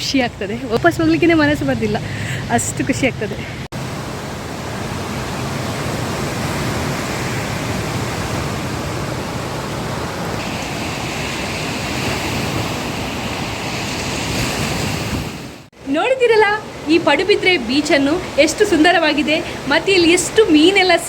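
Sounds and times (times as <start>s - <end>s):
sea surf on sandy beach: 1.0s - 21.0s
wind on microphone: 5.0s - 15.7s.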